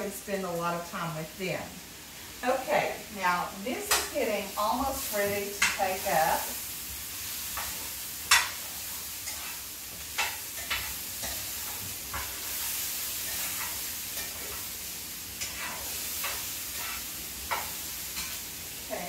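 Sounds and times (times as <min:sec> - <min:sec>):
food sizzling in a skillet: 0:00.0 - 0:19.0
utensil scraping a pan: 0:07.5 - 0:14.8, 0:15.4 - 0:18.4.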